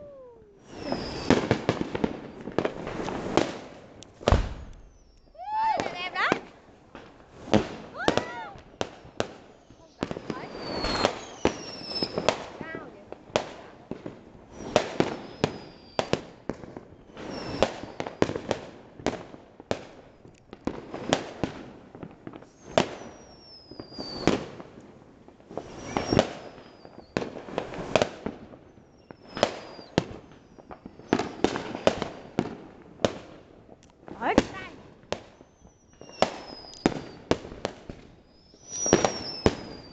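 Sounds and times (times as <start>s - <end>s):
firework falling whistle: 0.0s - 3.5s, 4.2s - 6.4s, 7.5s - 12.4s, 14.5s - 16.2s, 17.0s - 18.4s, 22.4s - 24.5s, 25.6s - 27.3s, 27.9s - 31.7s, 35.3s - 39.9s
fireworks bangs: 0.0s - 39.9s.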